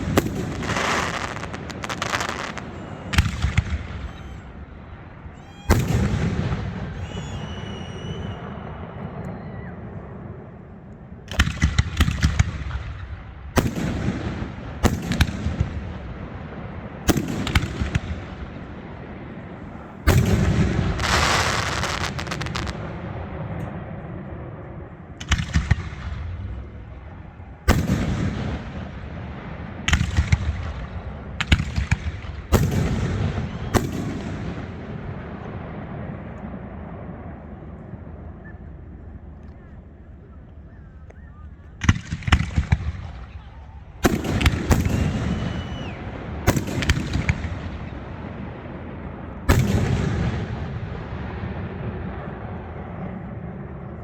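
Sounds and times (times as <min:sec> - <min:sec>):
fireworks crackling: 0:00.0 - 0:08.4, 0:19.6 - 0:23.0, 0:41.8 - 0:48.3
fireworks bangs echoing: 0:00.0 - 0:09.2, 0:11.3 - 0:24.5, 0:25.1 - 0:37.8, 0:41.8 - 0:52.4.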